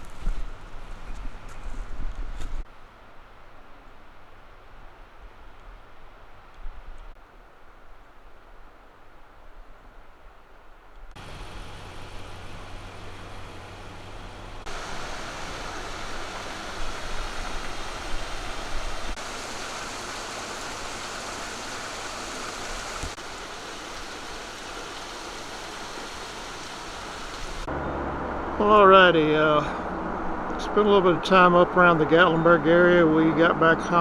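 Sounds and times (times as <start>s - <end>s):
stream water rushing: 11.2s - 34.0s.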